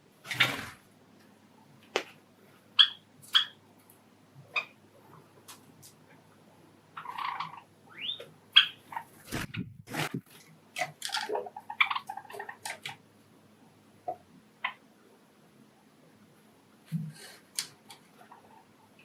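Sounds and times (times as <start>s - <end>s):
sparrows chirping: 7.0s - 9.2s.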